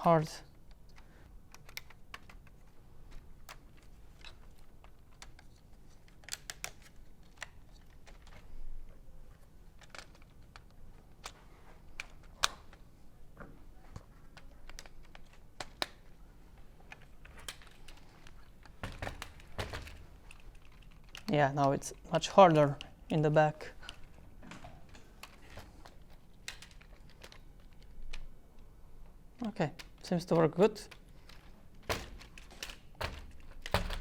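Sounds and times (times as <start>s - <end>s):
plastic parts clicking together: 0.5s - 8.6s, 9.3s - 12.8s, 14.3s - 28.4s, 29.0s - 34.0s.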